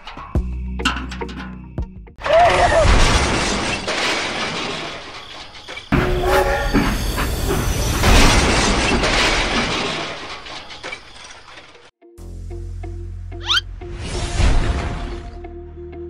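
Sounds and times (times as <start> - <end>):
train rumbling: 5.8 - 11.2.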